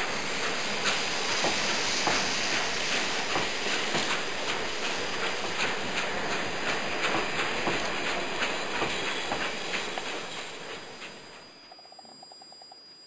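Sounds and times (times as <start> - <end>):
rhythmic rail clatter: 0.0 - 11.5
train running: 0.0 - 11.6.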